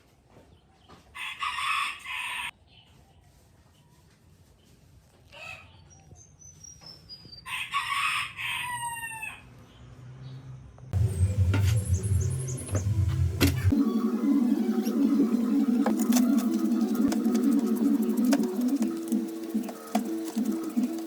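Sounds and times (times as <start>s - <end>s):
rooster crowing: 1.2s - 2.5s, 7.5s - 9.4s.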